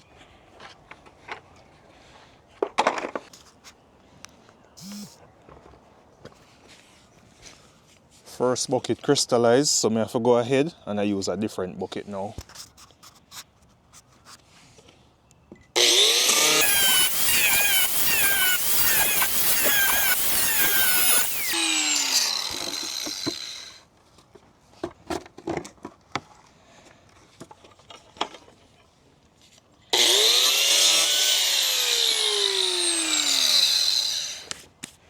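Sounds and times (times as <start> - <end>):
power tool cutting plastic: 4.8 - 5.1, 15.8 - 23.8, 30.0 - 34.6
motor winding down whine: 4.8 - 5.2, 15.8 - 23.8, 30.0 - 34.6.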